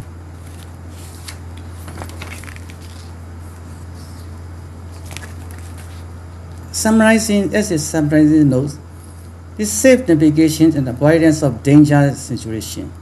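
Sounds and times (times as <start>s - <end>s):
steady low hum: 0.0s - 13.0s
faint clicks and rustles: 0.4s - 6.7s.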